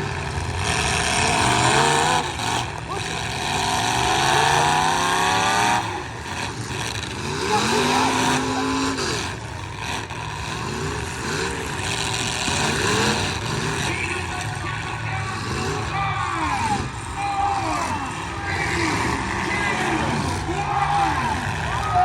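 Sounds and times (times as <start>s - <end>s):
car engines revving: 0.0s - 22.0s
steady engine drone: 0.0s - 22.0s.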